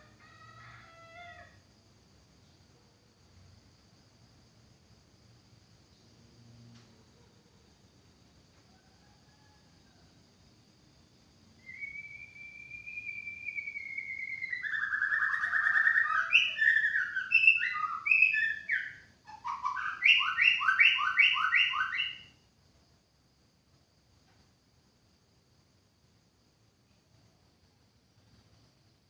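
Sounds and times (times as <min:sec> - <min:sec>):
songbird singing whistles: 0:11.6 - 0:22.4.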